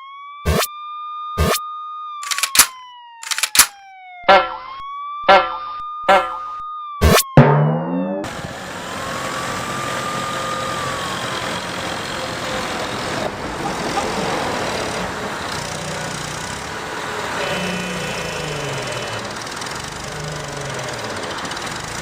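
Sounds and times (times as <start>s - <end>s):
truck engine running: 8.2s - 22.0s.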